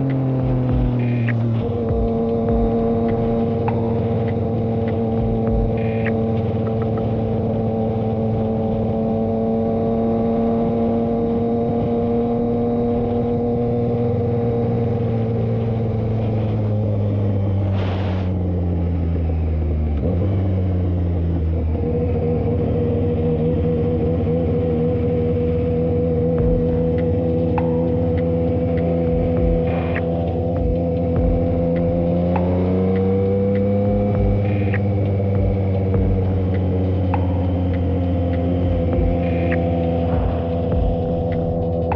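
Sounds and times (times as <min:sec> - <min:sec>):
motorcycle engine running: 0:00.0 - 0:41.9
brief hiss: 0:17.7 - 0:18.3.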